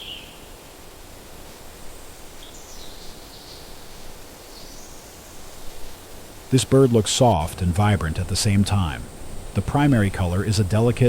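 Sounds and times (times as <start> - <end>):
faint high bird calls: 0.0 - 0.6
steady background hiss: 0.0 - 11.0.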